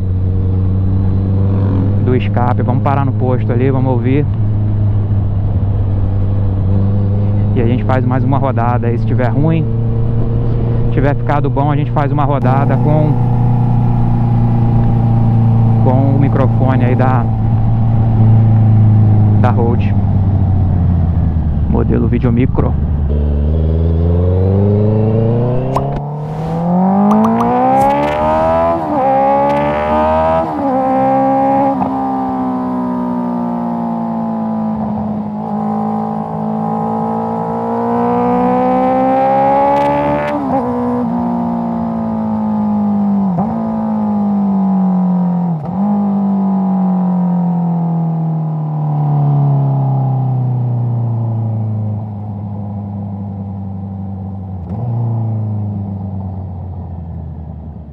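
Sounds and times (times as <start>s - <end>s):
motorcycle engine revving: 0.0s - 10.9s, 12.4s - 52.2s.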